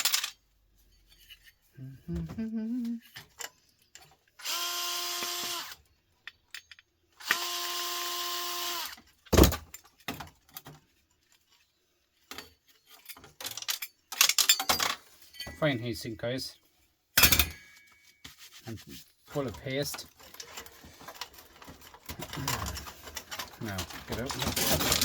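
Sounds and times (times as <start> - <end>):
parts clicking: 0.0 - 0.4
cordless drill whine: 4.4 - 5.8, 7.2 - 9.0.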